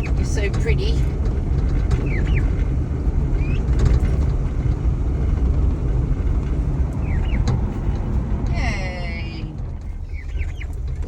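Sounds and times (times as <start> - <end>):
car driving rumble from inside: 0.0 - 11.0
high bird chirps: 7.0 - 7.5, 10.0 - 10.8.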